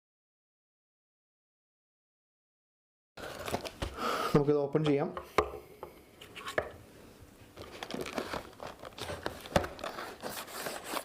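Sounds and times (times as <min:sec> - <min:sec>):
packaging crinkling and rustling: 0:03.2 - 0:04.0, 0:07.6 - 0:11.0.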